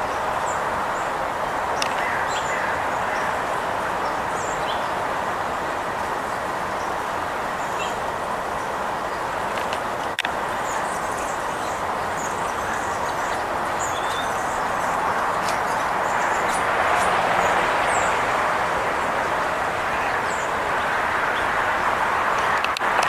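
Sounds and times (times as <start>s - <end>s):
distant road traffic: 0.0s - 23.0s
small birds chirping: 10.1s - 18.4s.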